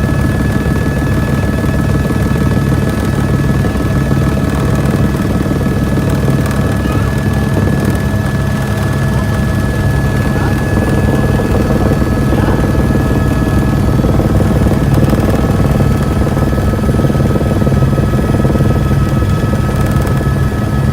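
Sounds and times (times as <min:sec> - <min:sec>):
helicopter rotor beating: 0:00.0 - 0:20.9
high whine: 0:05.8 - 0:20.5.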